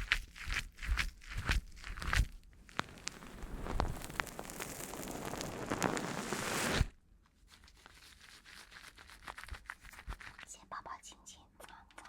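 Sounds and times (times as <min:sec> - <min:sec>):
crackling rustle of crumpling: 0:00.0 - 0:10.4
soft scattered crackles and ticks: 0:02.7 - 0:06.2, 0:11.6 - 0:12.0.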